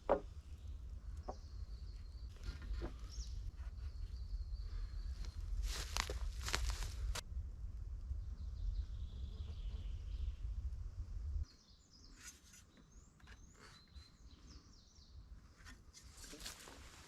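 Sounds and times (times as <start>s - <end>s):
low rumble: 0.0s - 11.5s
small birds chirping: 0.1s - 7.1s, 8.2s - 10.6s, 11.4s - 16.5s.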